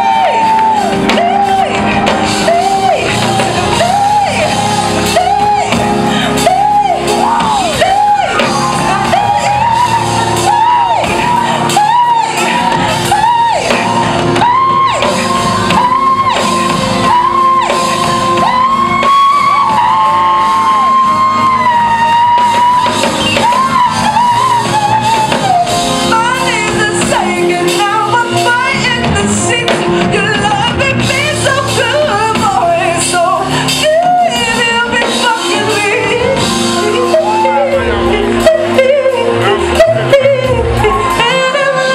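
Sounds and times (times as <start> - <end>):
audience shouting and whooping: 0.0 - 25.9, 36.8 - 38.7
band playing: 0.0 - 41.9
woman singing: 0.0 - 41.9.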